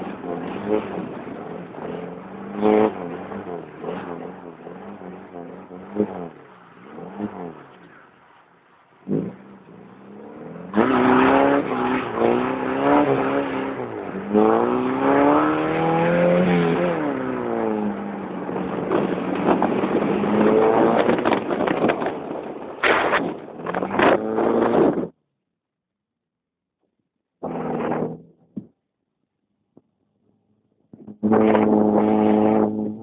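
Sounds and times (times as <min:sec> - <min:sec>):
car engine revving: 0:00.0 - 0:25.2, 0:27.4 - 0:28.6, 0:31.0 - 0:33.0.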